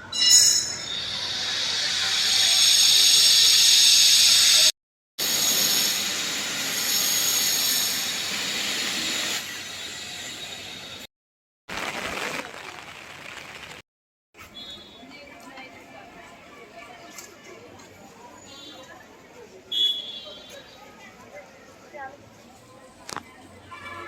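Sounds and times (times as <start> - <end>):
heavy rain falling: 11.7 - 13.8.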